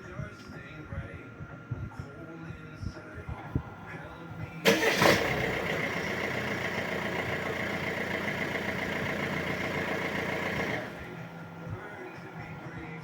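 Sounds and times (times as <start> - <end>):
car engine running: 3.6 - 13.0.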